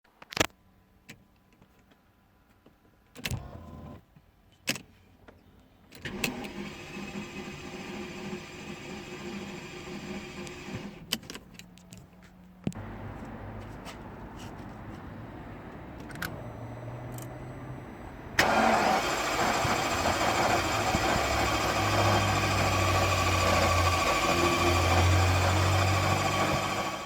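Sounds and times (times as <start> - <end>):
starter motor cranking engine: 6.0 - 11.1, 18.4 - 27.0.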